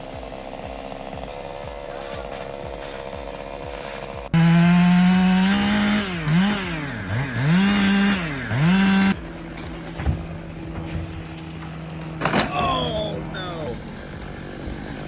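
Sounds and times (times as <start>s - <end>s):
chainsaw running at full throttle: 0.0s - 15.0s
quiet steady engine: 0.0s - 15.0s.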